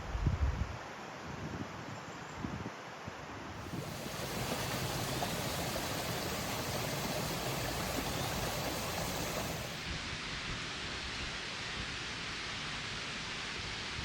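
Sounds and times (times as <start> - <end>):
running water rushing: 3.6 - 10.0.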